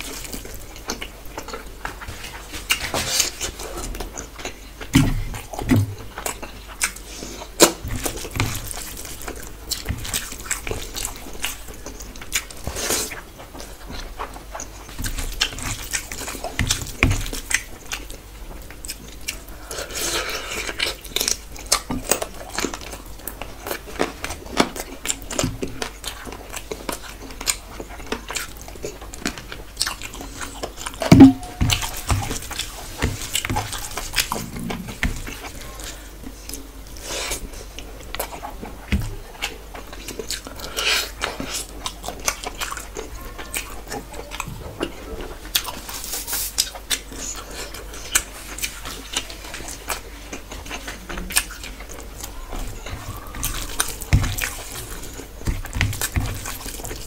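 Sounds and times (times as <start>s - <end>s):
person chewing: 0.0s - 57.0s.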